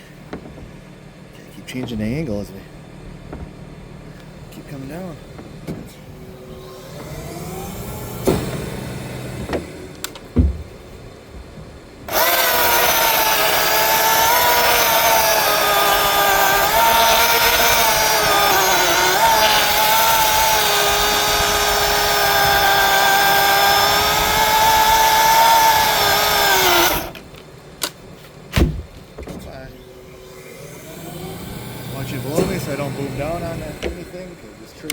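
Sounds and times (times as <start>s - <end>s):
electric chainsaw cutting limb: 6.5s - 10.2s, 12.1s - 27.3s, 29.9s - 34.3s.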